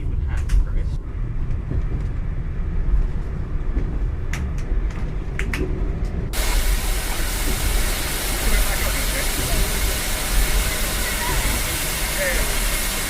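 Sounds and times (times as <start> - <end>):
steam locomotive rumble: 0.0 - 13.0
loud hiss of steam: 6.3 - 13.0.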